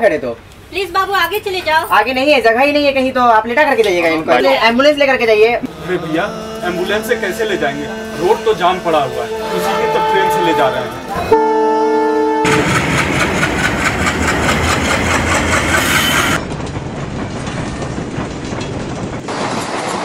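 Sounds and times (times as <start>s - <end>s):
train wheels clattering: 12.4s - 20.0s.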